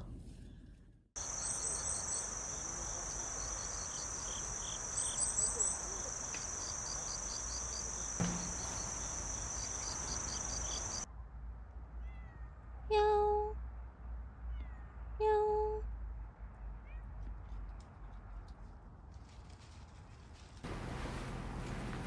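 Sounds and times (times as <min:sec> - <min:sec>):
insects chirping: 0:01.2 - 0:11.1, 0:20.7 - 0:22.0
insects trilling: 0:01.2 - 0:11.1.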